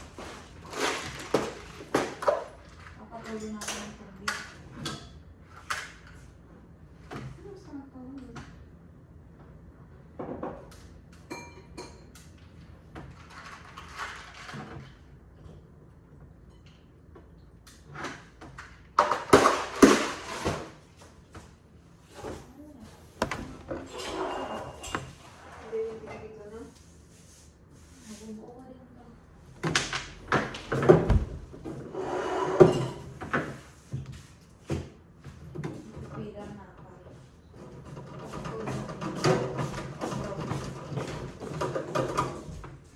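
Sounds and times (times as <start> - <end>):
clicks knocks and rustling: 29.5 - 31.8.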